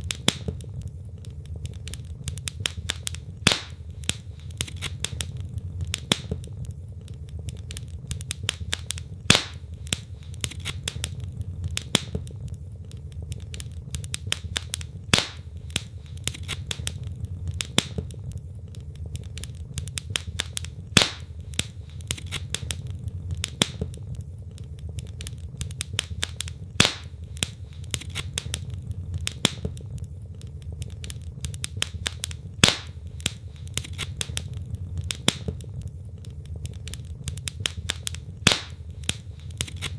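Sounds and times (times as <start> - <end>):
fire crackling: 0.0 - 39.9
low steady rumble: 0.0 - 39.9
loud fire pop: 2.6 - 6.5, 8.3 - 12.4, 14.2 - 18.2, 20.0 - 22.8, 25.9 - 28.7, 31.8 - 34.5, 37.6 - 39.9.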